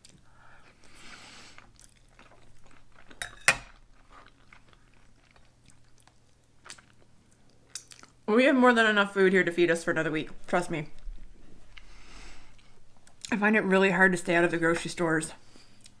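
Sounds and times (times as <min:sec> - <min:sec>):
person chewing food: 0:00.0 - 0:08.2, 0:11.0 - 0:13.3, 0:15.6 - 0:16.0
cutlery clinking on a plate: 0:03.2 - 0:03.8.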